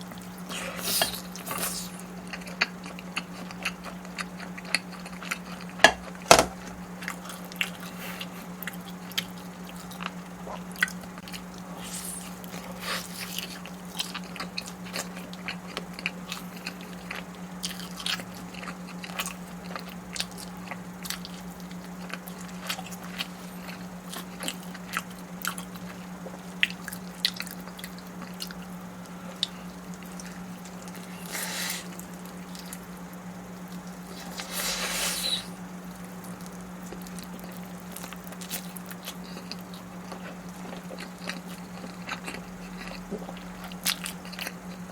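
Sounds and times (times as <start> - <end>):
biting and chewing: 0.0 - 44.9
low electrical hum: 0.0 - 44.9
rustling hiss: 34.1 - 35.6.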